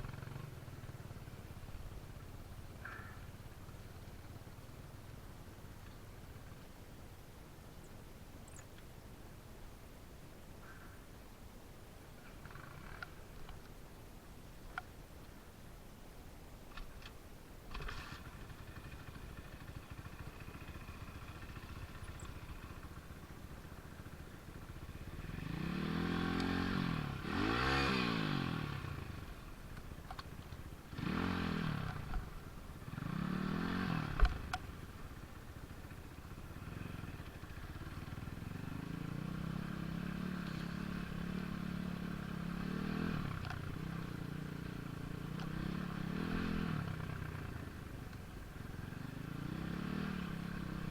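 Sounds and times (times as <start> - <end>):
engine revving: 25.1 - 29.3, 30.9 - 32.2, 32.9 - 34.6, 36.6 - 47.6, 48.8 - 50.9.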